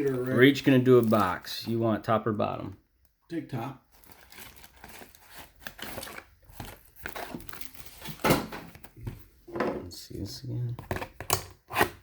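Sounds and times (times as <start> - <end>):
plastic wrapping crinkling: 0.0 - 1.8, 3.9 - 9.1
cardboard tearing: 4.0 - 8.3.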